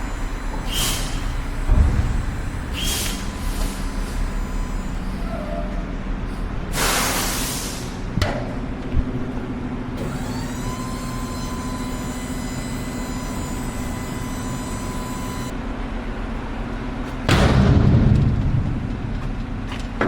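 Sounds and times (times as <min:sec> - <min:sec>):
high whine: 0:00.0 - 0:06.7
truck engine running: 0:00.0 - 0:20.0.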